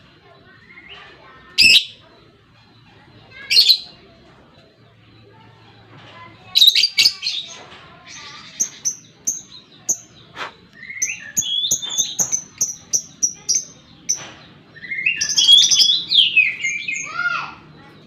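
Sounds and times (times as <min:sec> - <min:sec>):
bird shrill calls and chirps: 0:06.5 - 0:17.4.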